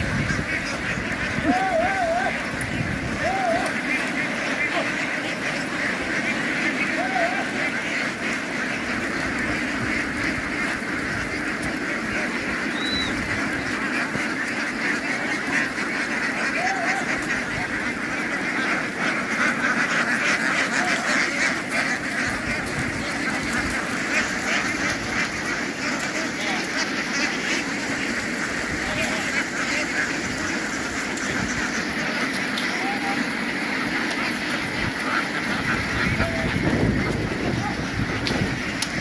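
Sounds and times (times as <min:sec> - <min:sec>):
flock of ducks quacking: 0:00.0 - 0:39.0.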